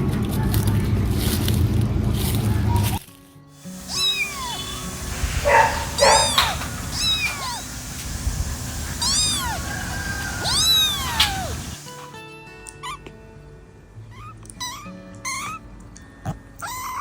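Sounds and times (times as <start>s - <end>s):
kittens meowing: 3.7s - 11.9s.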